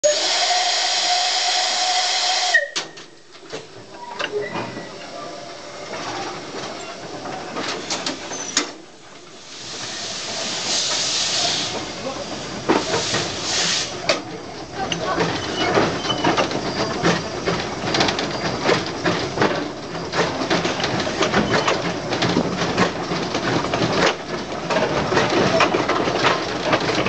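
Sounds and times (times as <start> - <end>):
loud hiss of steam: 0.0 - 2.8, 7.8 - 14.3
steam locomotive whistle: 0.0 - 3.0
train clanks and knocks: 2.5 - 27.0.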